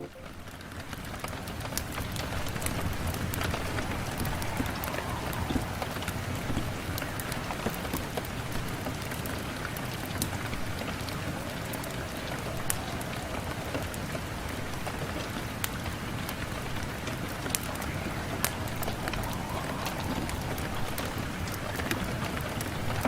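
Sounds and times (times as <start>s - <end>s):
rain falling on a window: 0.2s - 23.0s.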